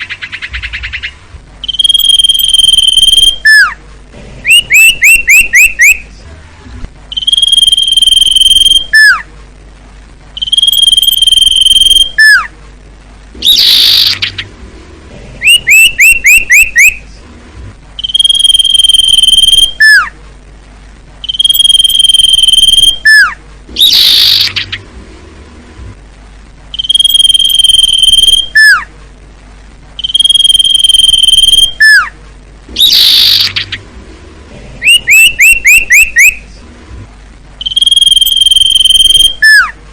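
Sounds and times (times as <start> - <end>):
bird whistling and chirping: 0.0 - 3.8, 4.4 - 6.0, 7.1 - 9.3, 10.4 - 12.5, 13.4 - 14.5, 15.4 - 17.0, 18.0 - 20.1, 21.2 - 24.8, 26.8 - 28.9, 30.0 - 32.1, 32.8 - 33.8, 34.8 - 36.4, 37.6 - 39.8
harsh scratchy bird call: 0.0 - 3.8, 4.5 - 6.1, 7.1 - 9.3, 10.4 - 12.5, 13.4 - 14.5, 15.4 - 17.0, 18.0 - 20.2, 21.2 - 24.8, 26.8 - 28.9, 30.0 - 32.2, 32.8 - 33.8, 34.8 - 36.5, 37.6 - 39.8.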